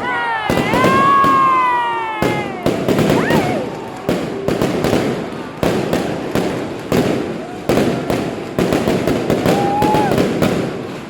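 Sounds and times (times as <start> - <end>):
crowd talking: 0.0 - 10.2
fireworks bangs and pops: 0.4 - 11.0
rising firework whistle: 0.5 - 4.7, 9.4 - 10.4.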